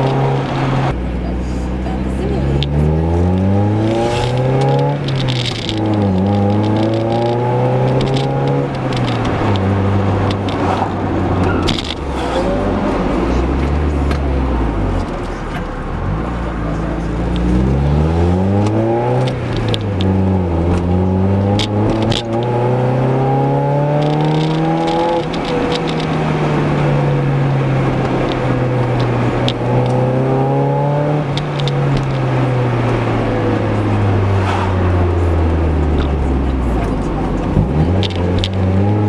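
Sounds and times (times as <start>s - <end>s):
car engine accelerating: 0.0s - 39.0s.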